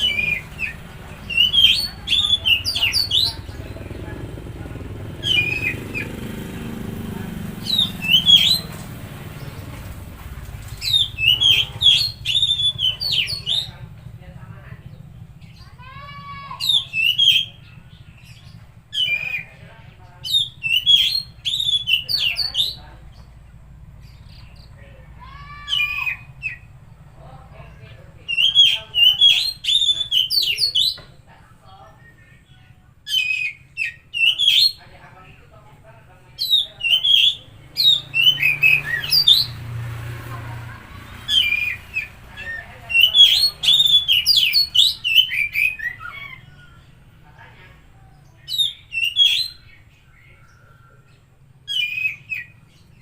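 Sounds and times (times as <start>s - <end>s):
bird singing: 0.0s - 39.9s, 40.6s - 53.0s
bird singing varied whistles: 5.2s - 6.1s, 7.6s - 8.7s, 20.3s - 22.8s, 36.4s - 39.6s.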